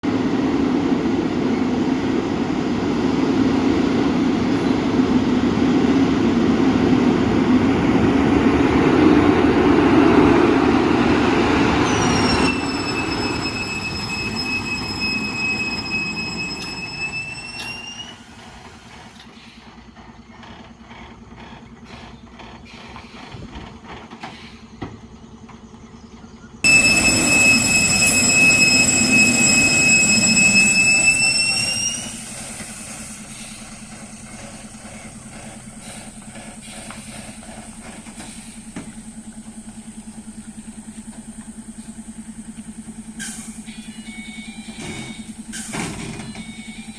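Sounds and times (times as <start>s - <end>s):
heavy lorry engine labouring: 0.0s - 46.9s
high-pitched brake squeal: 11.3s - 19.6s, 26.6s - 38.8s, 43.2s - 46.9s.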